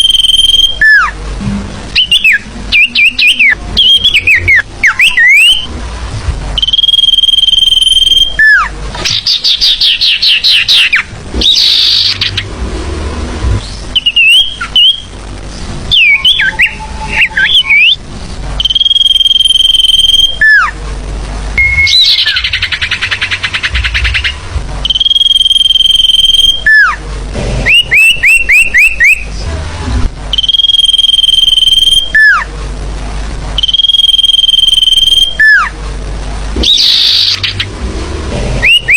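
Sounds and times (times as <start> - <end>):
buzzy bird trill: 0.0 - 1.2, 1.9 - 5.7, 6.6 - 12.6, 13.6 - 15.2, 15.9 - 18.0, 18.6 - 20.8, 21.6 - 27.0, 30.3 - 32.5, 33.6 - 35.7, 36.6 - 37.8, 38.6 - 38.9
rising bird notes: 1.9 - 5.8, 6.6 - 15.1, 15.9 - 18.0, 21.6 - 27.0, 38.5 - 38.9
bird chattering calls: 21.6 - 25.1.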